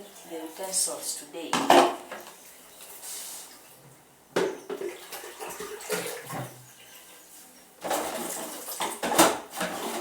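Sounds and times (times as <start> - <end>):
water sloshing in a basin: 4.5 - 10.0.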